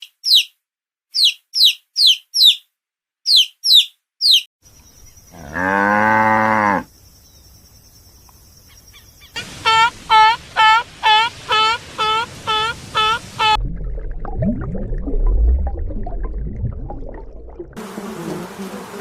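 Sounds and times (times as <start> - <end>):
small bird chirping: 0.0 - 5.4, 6.9 - 9.4
cow mooing: 5.3 - 6.9.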